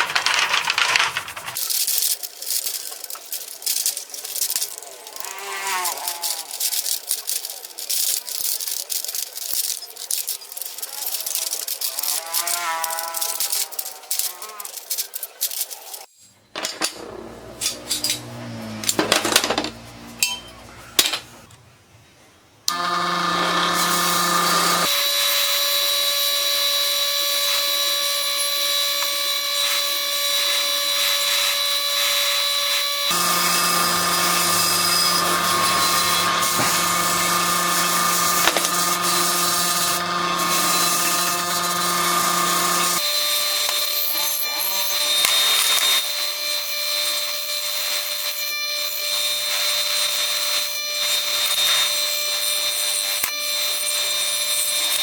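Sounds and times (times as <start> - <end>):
metal parts knocking: 0.0 - 17.0
power tool whining: 17.0 - 20.1, 22.7 - 55.0.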